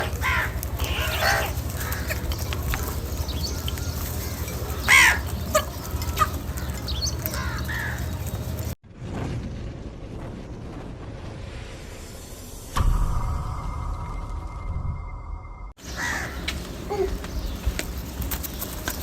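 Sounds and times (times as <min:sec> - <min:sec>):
crows cawing: 0:00.0 - 0:08.7, 0:15.8 - 0:18.4
low hum: 0:00.0 - 0:18.9.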